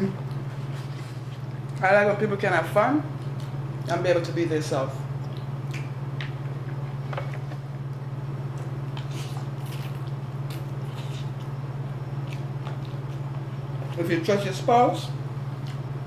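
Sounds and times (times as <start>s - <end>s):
steady low hum: 0.0s - 16.0s
person chewing food: 3.2s - 3.9s, 5.1s - 14.0s, 15.5s - 15.9s
wet mouth clicks and smacks: 5.2s - 6.3s.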